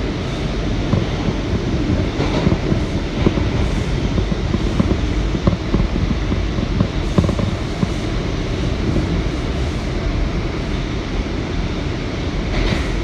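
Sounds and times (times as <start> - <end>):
subway car rumble: 0.0 - 13.0
wheels clicking over track: 0.6 - 10.6.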